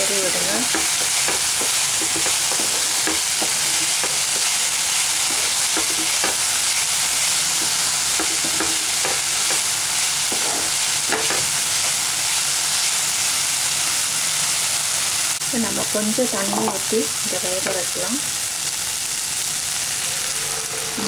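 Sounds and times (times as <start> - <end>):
vegetables sizzling in oil: 0.0 - 21.0
wooden spatula scraping pan: 0.3 - 6.6, 7.2 - 12.0.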